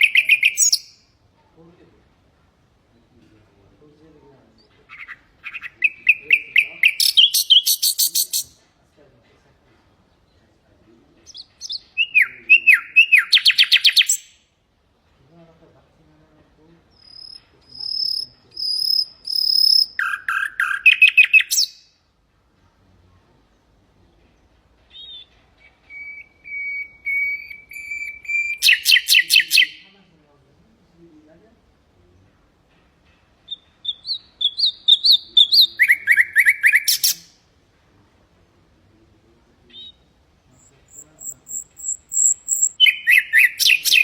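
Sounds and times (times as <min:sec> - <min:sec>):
nightingale singing: 0:00.0 - 0:01.1, 0:04.6 - 0:08.6, 0:11.3 - 0:14.5, 0:16.9 - 0:22.0, 0:24.3 - 0:29.9, 0:33.5 - 0:37.4, 0:39.6 - 0:44.0.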